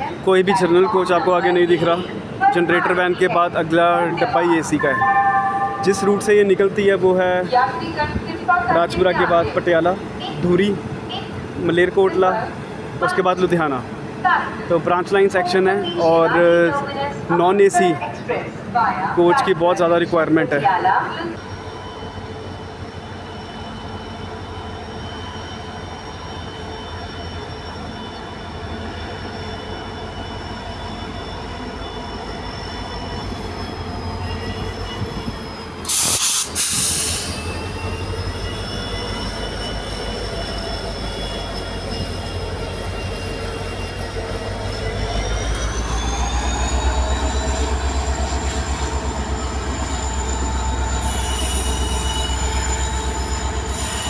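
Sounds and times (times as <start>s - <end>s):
train low rumble: 20.0s - 54.0s
train wheels squealing: 21.0s - 54.0s
loud hiss: 35.8s - 37.4s.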